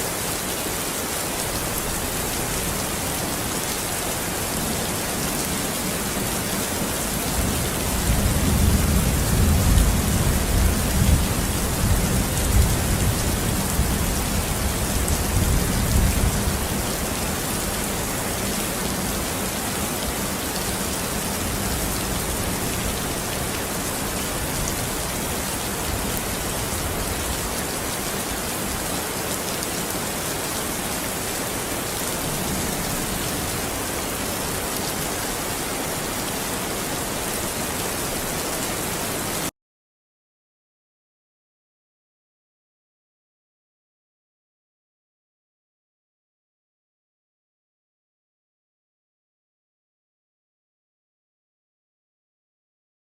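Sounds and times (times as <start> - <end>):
steady rain falling: 0.0 - 39.5
low rumble of thunder: 7.2 - 17.9.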